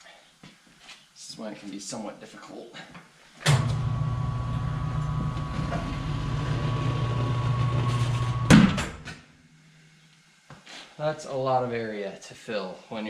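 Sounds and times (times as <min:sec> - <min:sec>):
machine motor humming: 0:03.5 - 0:09.0.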